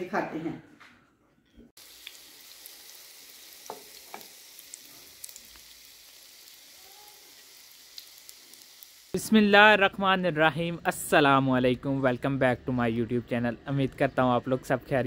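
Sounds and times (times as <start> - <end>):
kebabs sizzling in hot oil: 1.8 - 15.0.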